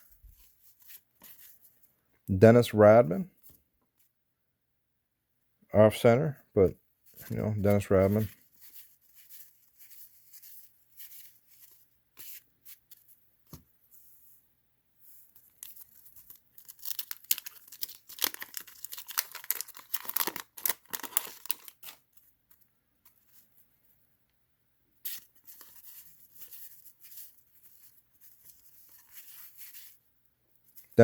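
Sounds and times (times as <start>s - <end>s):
wax-paper wrapper crinkling and tearing: 15.4s - 22.3s, 25.0s - 30.0s.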